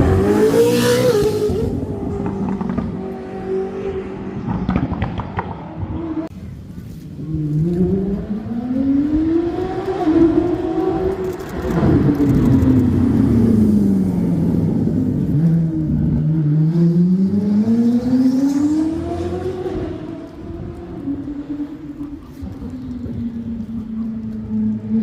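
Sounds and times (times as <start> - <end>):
car engine revving: 0.0 - 6.3.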